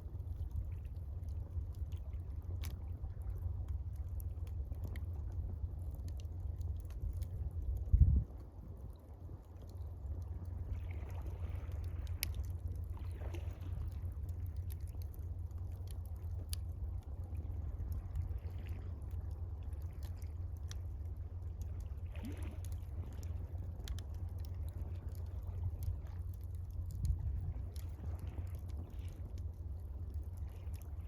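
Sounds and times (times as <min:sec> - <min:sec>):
low rumble: 0:00.0 - 0:31.0
water lapping: 0:00.1 - 0:31.0
campfire crackling and popping: 0:08.9 - 0:17.0, 0:19.0 - 0:31.0.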